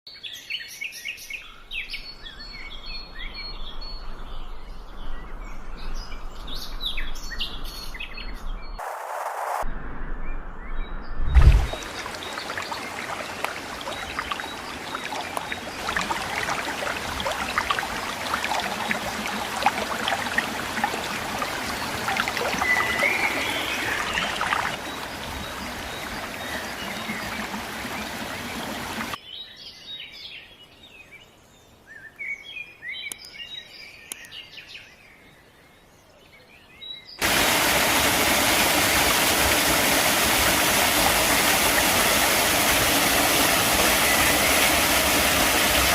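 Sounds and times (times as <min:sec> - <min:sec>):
loud steady rushing noise: 0:08.8 - 0:09.7
crackling rushing noise: 0:08.8 - 0:10.0, 0:11.2 - 0:13.8
birds chirping: 0:10.6 - 0:30.5.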